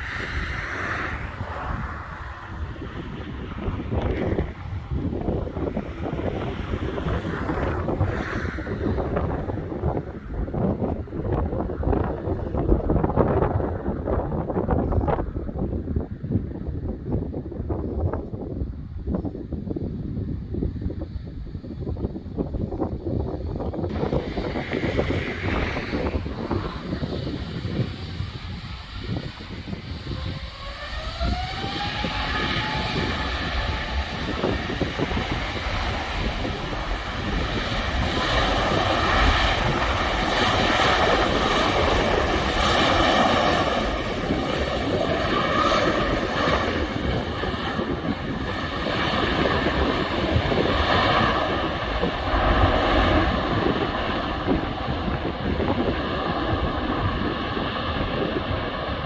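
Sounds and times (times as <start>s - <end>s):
loud jet engine roar: 0.0s - 59.0s
jet engine whine rising: 23.9s - 59.0s.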